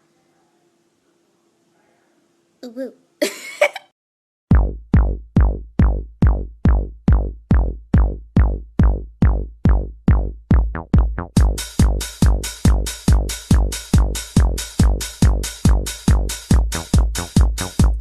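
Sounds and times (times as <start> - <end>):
drum machine kick beat: 4.5 - 18.0.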